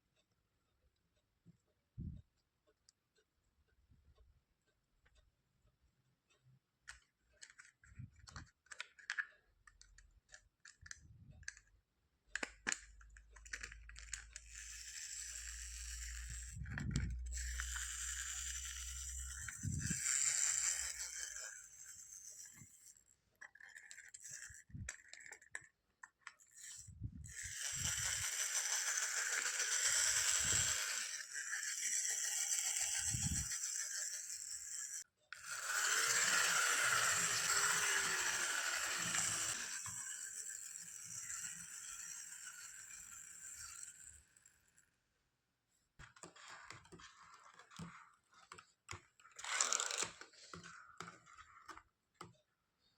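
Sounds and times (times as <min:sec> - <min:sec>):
small plastic pieces rattling: 0:26.6 - 0:44.2.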